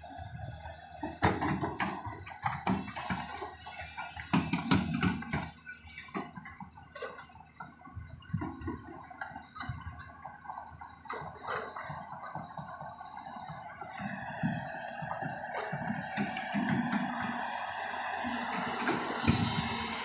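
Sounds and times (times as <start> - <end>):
excavator engine running: 0.0 - 20.0
soil and rocks clattering: 0.7 - 20.0.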